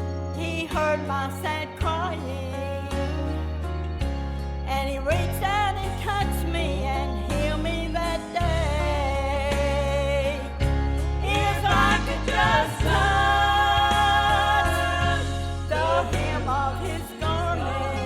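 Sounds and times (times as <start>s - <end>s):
backing music with bass line: 0.0s - 18.0s
woman singing gospel with vibrato: 4.7s - 18.0s.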